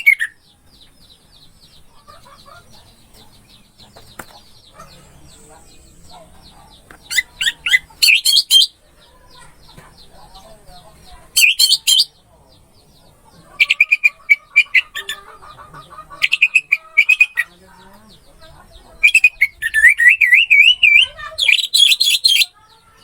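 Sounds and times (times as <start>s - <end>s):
faint chirping: 0.0s - 23.0s.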